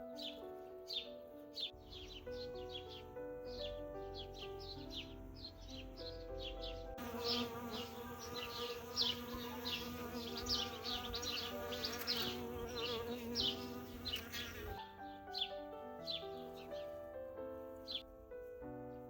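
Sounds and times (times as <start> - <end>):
small birds chirping: 0.0 - 17.0
soft background music: 0.0 - 19.0
bees buzzing: 6.4 - 14.8.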